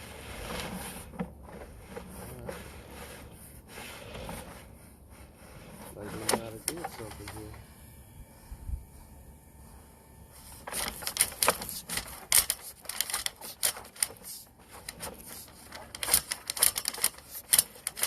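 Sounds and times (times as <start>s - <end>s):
camera cable rattling in pipe: 10.6s - 18.0s.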